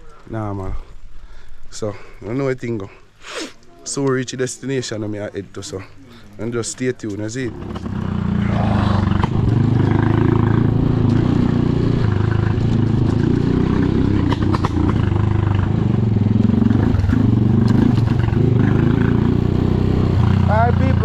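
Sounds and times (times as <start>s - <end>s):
motorcycle engine running: 7.5s - 21.0s.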